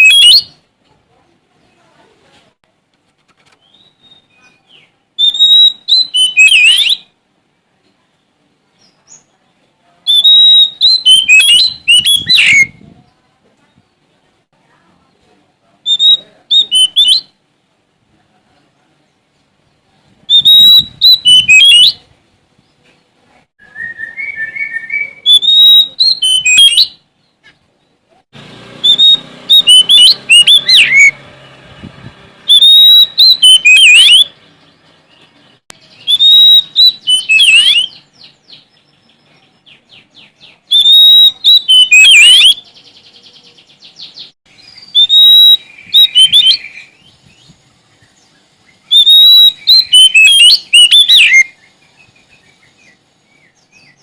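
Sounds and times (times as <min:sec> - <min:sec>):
songbird singing whistles and trills: 0:00.0 - 0:00.7, 0:03.6 - 0:07.2, 0:10.0 - 0:13.0, 0:15.8 - 0:17.4, 0:20.3 - 0:22.0, 0:23.6 - 0:28.0, 0:28.8 - 0:31.2, 0:32.5 - 0:34.4, 0:35.8 - 0:54.0.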